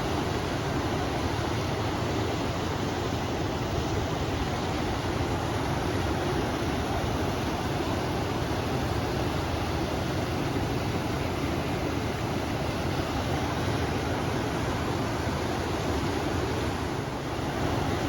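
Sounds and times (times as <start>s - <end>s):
river water flowing: 0.0s - 18.0s
wind: 0.0s - 18.0s.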